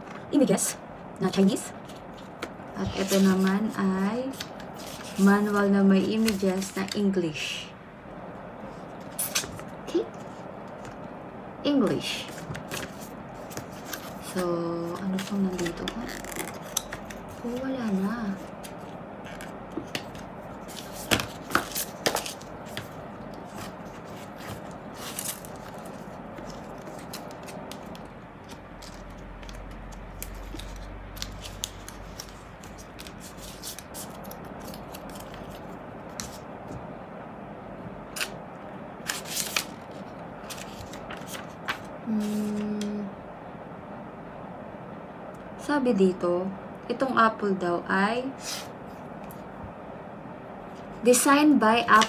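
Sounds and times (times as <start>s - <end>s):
paper and packaging rustling: 1.6s - 7.2s, 12.1s - 36.5s, 39.0s - 42.8s.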